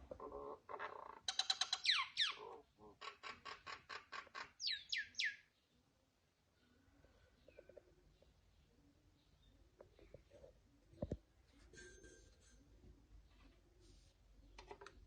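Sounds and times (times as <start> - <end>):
bird singing: 0.8 - 5.8.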